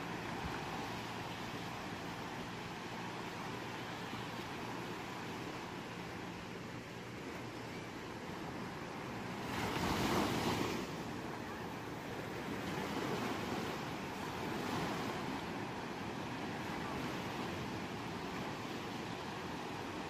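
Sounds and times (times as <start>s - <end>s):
ocean waves washing on shore: 0.0s - 20.0s.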